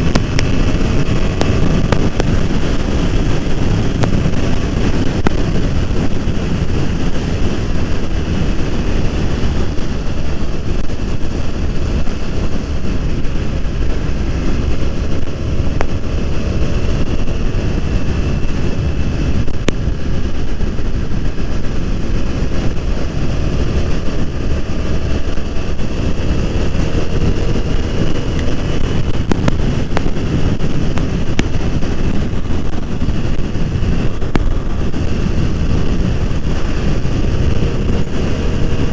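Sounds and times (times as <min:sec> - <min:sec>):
motorcycle engine cruising: 0:00.0 - 0:38.9
wind buffeting microphone: 0:00.0 - 0:38.9.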